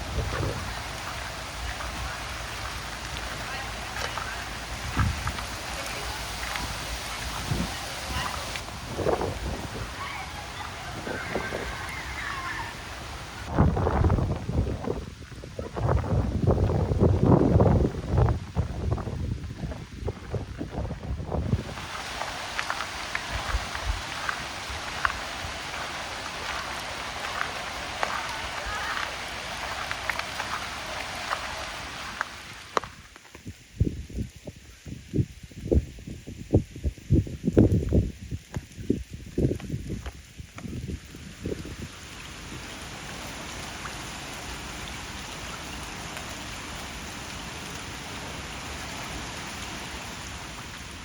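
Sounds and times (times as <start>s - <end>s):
raindrops ticking: 0.0s - 13.5s, 21.6s - 33.6s, 37.5s - 51.0s
rain falling: 0.0s - 51.0s.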